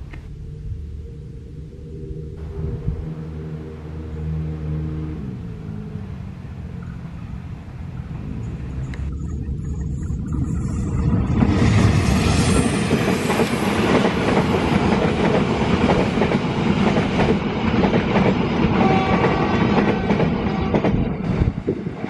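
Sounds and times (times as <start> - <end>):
train rushing past: 10.3 - 22.0.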